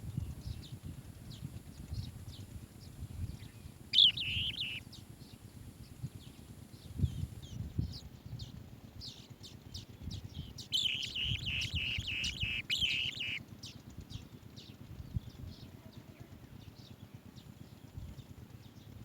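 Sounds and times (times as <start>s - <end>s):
bird chirps: 3.4s - 5.0s, 9.0s - 14.2s
bird trill: 3.4s - 5.0s, 9.0s - 14.2s.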